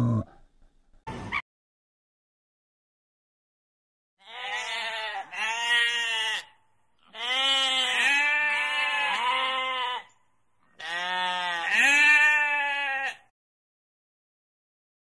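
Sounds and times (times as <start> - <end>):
sheep bleating: 4.2 - 10.2, 10.8 - 13.3.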